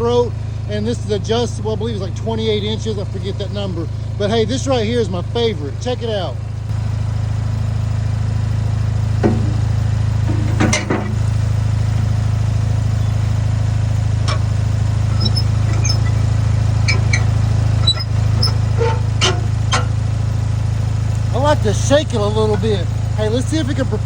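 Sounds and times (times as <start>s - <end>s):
backhoe engine running: 0.0s - 24.0s
metal clinks and knocks: 9.2s - 11.4s, 14.3s - 20.1s.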